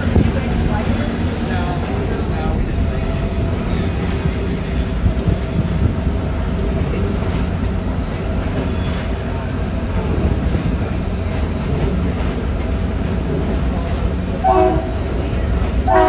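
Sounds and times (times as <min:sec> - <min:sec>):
high wheel squeal: 0:00.0 - 0:06.0
train wheels rumbling on rail: 0:00.0 - 0:16.0.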